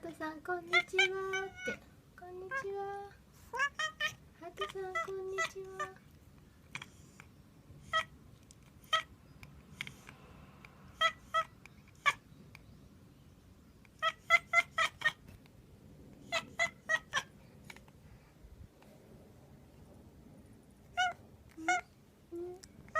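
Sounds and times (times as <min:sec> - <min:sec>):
cat chirping: 0:00.6 - 0:01.8, 0:03.5 - 0:06.0, 0:06.7 - 0:09.9, 0:10.9 - 0:12.6, 0:13.8 - 0:15.3, 0:16.2 - 0:17.9, 0:20.8 - 0:22.9.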